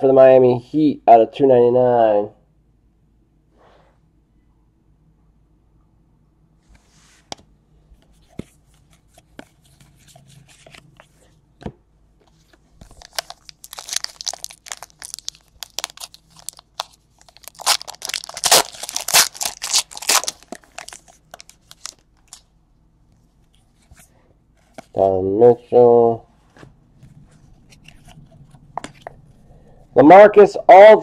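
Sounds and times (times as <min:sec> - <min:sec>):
foil wrapper tearing and crinkling: 0:12.9 - 0:22.5.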